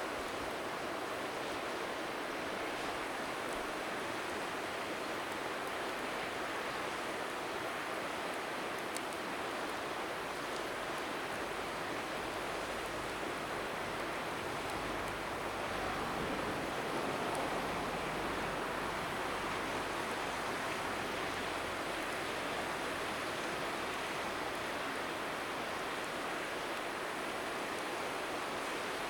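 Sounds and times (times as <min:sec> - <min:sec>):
river water rushing: 0:00.0 - 0:29.0
wind buffeting microphone: 0:15.4 - 0:19.4.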